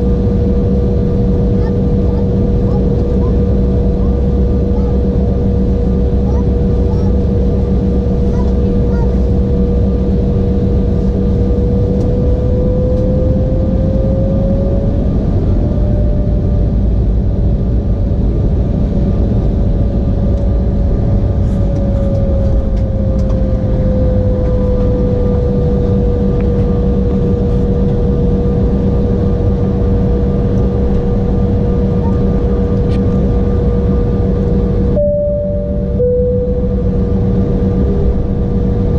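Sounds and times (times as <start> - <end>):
jet engine whine: 0.0 - 38.9.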